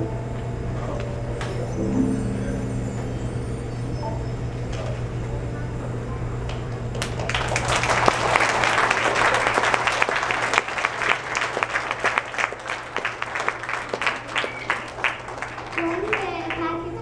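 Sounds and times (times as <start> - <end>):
low hum: 1.6 - 6.2
audience applauding: 6.9 - 17.0.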